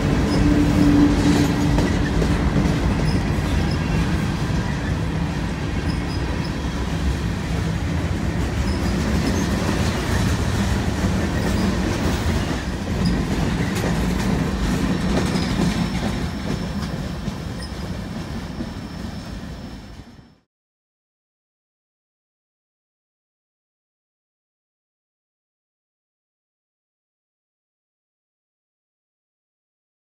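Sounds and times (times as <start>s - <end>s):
high wheel squeal: 0.0s - 2.2s, 3.0s - 5.1s, 5.7s - 7.1s, 8.6s - 9.5s, 15.3s - 20.4s
freight train wheels rumbling on rail: 0.0s - 20.4s.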